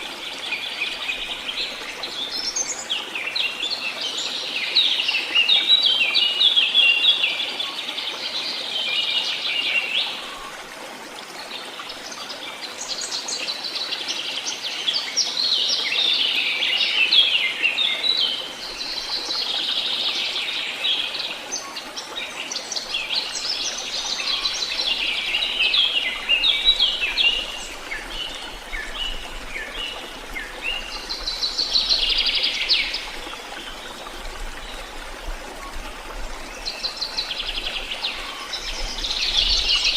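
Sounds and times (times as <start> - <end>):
songbirds twittering: 11.3 - 39.9.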